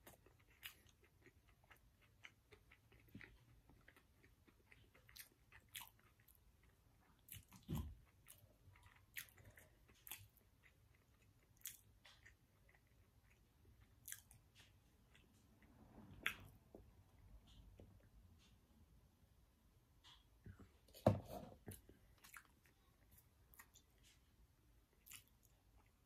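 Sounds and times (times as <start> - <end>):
chewing and mouth sounds: 0.0 - 18.5, 21.6 - 26.0.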